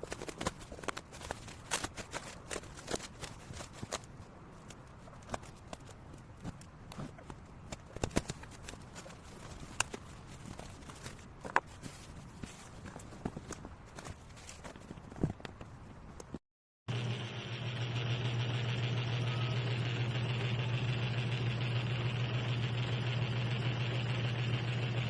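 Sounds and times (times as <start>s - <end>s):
objects being handled: 0.0s - 16.4s.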